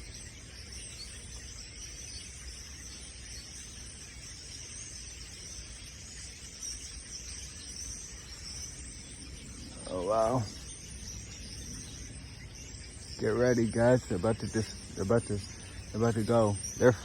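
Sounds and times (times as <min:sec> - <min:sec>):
flock of birds chirping: 0:00.0 - 0:17.0.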